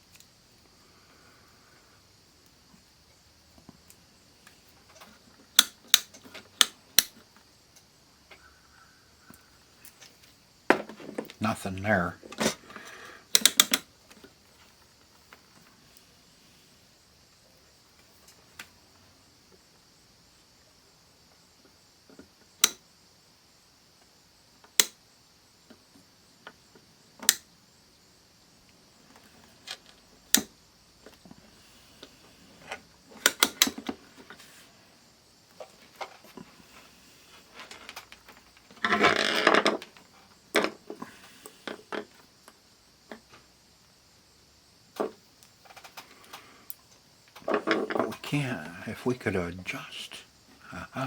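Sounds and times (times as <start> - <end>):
multimeter clicks and taps: 13.4 - 13.8, 24.8 - 25.0.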